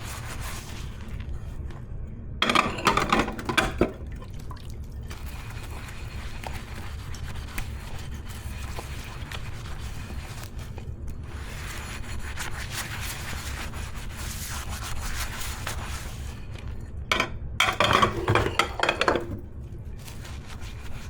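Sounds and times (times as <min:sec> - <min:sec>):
dishes clinking: 0:02.4 - 0:04.0, 0:17.1 - 0:19.4
water splashing into sink: 0:02.4 - 0:05.3.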